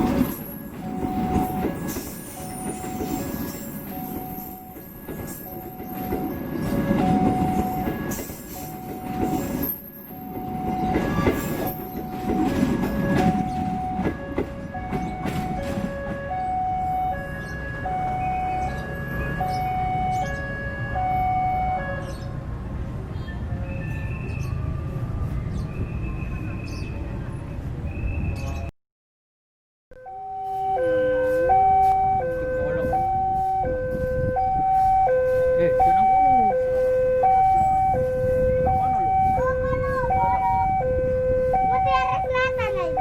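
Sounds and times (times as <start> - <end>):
train wheels rumbling on rails: 0.0 - 19.5, 30.4 - 40.8
two-tone electronic warning signal: 0.8 - 22.0, 29.9 - 43.0.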